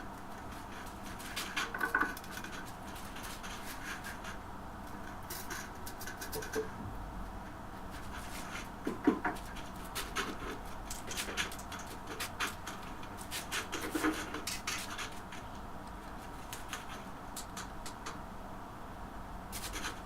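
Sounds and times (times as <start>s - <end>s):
scraping and clicking on stoneware tile: 1.2s - 4.4s.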